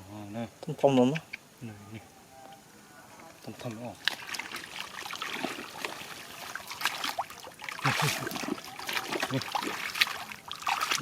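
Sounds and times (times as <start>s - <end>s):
shallow water splashing: 3.6s - 11.0s.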